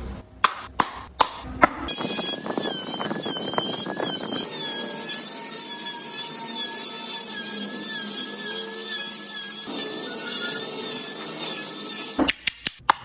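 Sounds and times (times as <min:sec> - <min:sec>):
grinding hiss: 0:01.9 - 0:12.2
power tool whining on wood: 0:01.9 - 0:12.2.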